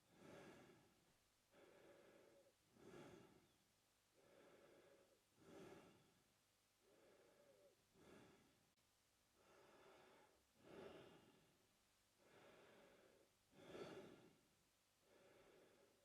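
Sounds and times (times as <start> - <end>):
man breathing through mouth: 0.1 - 0.9, 1.5 - 3.6, 4.2 - 6.1, 6.8 - 8.5, 9.4 - 11.4, 12.2 - 14.4.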